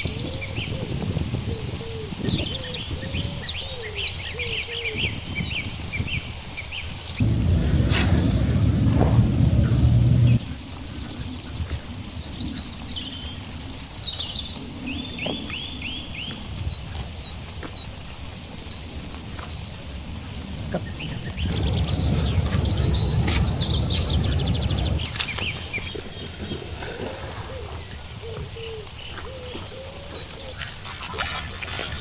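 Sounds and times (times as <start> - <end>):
low outdoor rumble: 7.2 - 10.5, 21.4 - 26.4
songbirds chirping: 7.2 - 10.8, 12.1 - 32.0.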